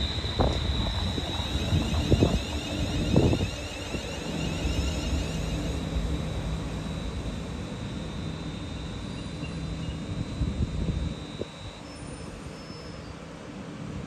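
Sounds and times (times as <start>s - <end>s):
wind on microphone: 0.0s - 5.3s
train hum and high whine: 0.0s - 14.0s
train rumbling with clacks: 0.0s - 14.0s.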